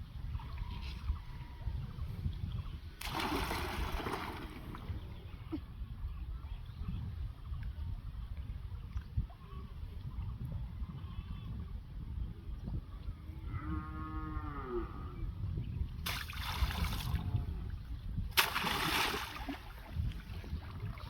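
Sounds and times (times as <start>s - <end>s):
cow mooing: 13.5s - 15.2s.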